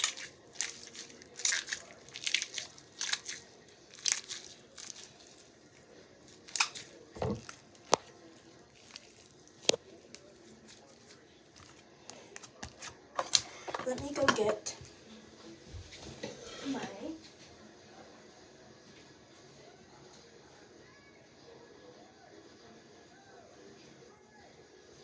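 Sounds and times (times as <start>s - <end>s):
slime sticky crackles and clicks: 0.0s - 5.5s, 6.3s - 8.1s.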